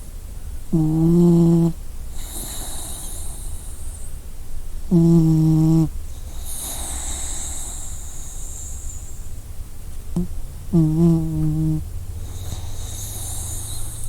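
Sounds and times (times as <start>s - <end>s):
low steady rumble: 0.0s - 14.0s
dog snoring: 0.7s - 4.1s, 4.9s - 9.3s, 10.1s - 14.0s
whistly hiss of breath: 2.1s - 4.2s, 6.1s - 9.4s, 12.2s - 14.0s.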